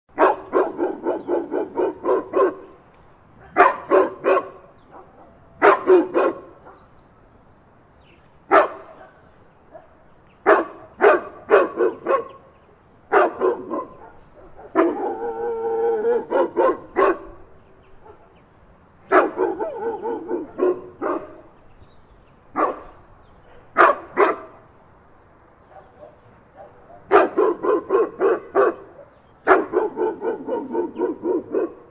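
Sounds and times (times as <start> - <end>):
dog barking: 0.2 - 2.8, 3.4 - 6.9, 8.5 - 12.4, 13.1 - 17.4, 18.0 - 18.4, 19.1 - 21.5, 22.6 - 24.6, 25.6 - 31.9
dog drawn-out call: 0.2 - 2.8, 13.1 - 17.4, 19.1 - 21.5, 25.7 - 31.9.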